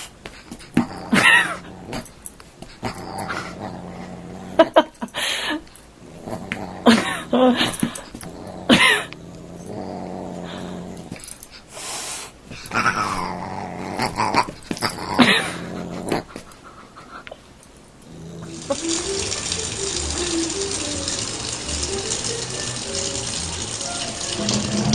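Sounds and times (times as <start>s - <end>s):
background music: 18.5s - 24.9s.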